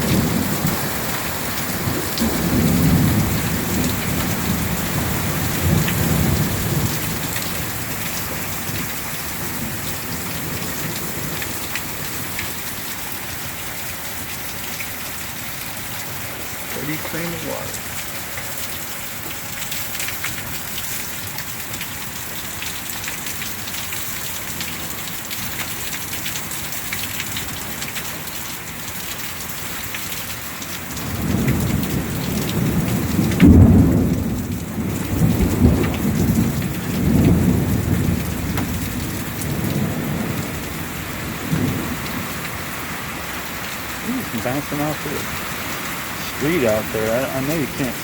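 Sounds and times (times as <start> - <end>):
thunder rumbling: 0.0 - 11.4, 31.0 - 42.6
heavy rain falling: 0.0 - 48.0.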